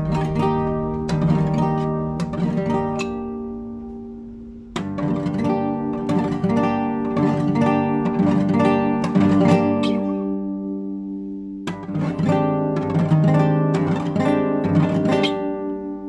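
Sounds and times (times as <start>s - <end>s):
classical guitar plucked notes: 0.0s - 16.0s.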